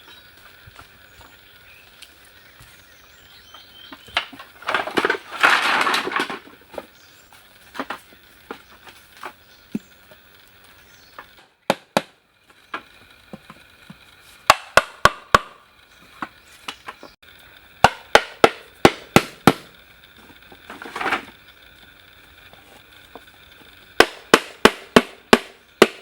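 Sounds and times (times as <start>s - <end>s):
hammer striking wood: 11.6s - 12.2s, 14.5s - 15.6s, 17.8s - 19.8s, 24.0s - 26.0s.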